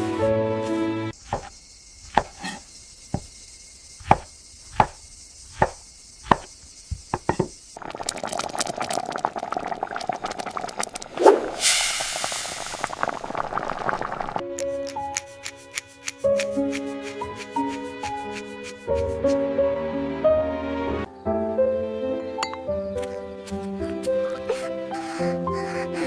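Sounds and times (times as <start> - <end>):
knife chopping on cutting board: 1.3 - 1.5, 4.0 - 5.0, 5.6 - 6.5
crackling sizzle: 3.4 - 17.9.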